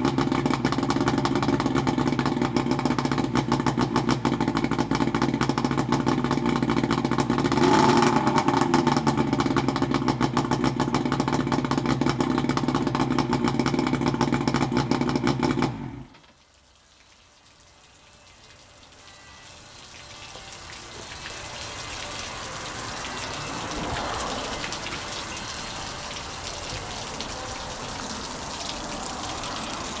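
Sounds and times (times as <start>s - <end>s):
outboard motor running: 0.0s - 16.1s.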